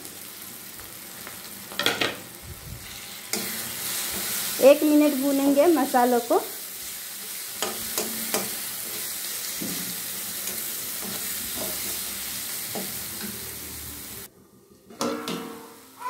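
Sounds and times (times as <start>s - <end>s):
food sizzling in a pan: 0.0s - 14.3s
spatula scraping and tapping pan: 7.6s - 9.0s.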